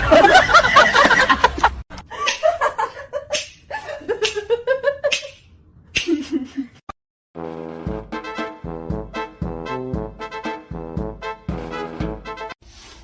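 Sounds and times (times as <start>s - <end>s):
people laughing: 0.0s - 5.2s
lower-pitched laugh: 0.0s - 5.4s.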